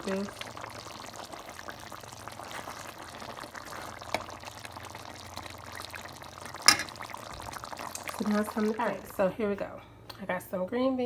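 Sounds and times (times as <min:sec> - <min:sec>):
gravy bubbling in a pot: 0:00.0 - 0:09.6.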